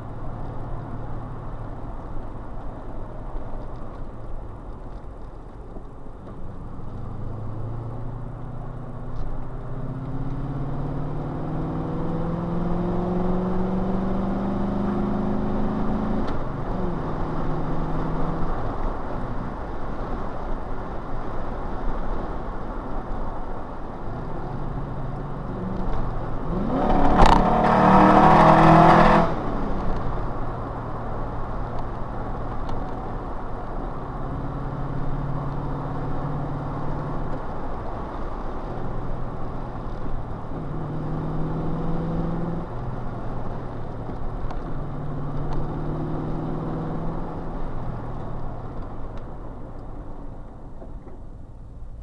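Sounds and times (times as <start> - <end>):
car engine heard from cabin: 21.6 - 52.0.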